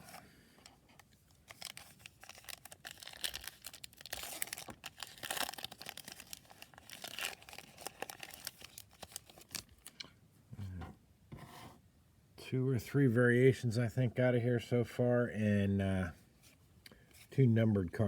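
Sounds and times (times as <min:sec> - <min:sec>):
foil wrapper tearing and crinkling: 0:01.4 - 0:09.9.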